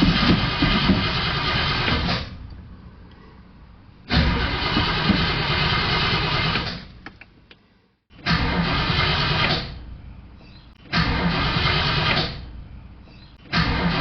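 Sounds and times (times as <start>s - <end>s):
car engine cranking by starter: 0.0s - 2.4s, 4.1s - 7.0s, 8.2s - 9.9s, 10.8s - 12.6s, 13.4s - 14.0s.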